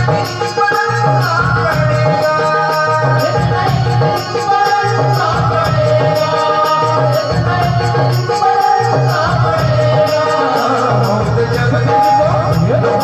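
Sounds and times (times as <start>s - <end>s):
instrumental music with beat: 0.0s - 13.0s.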